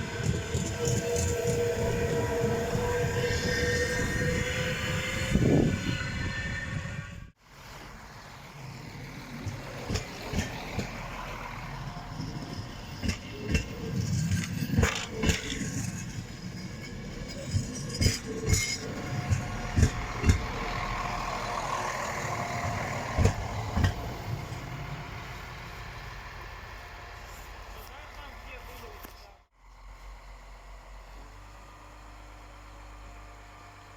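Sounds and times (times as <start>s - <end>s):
train rumbling past: 0.0s - 33.8s
sharp clanks and knocks: 13.0s - 20.8s, 22.7s - 24.3s.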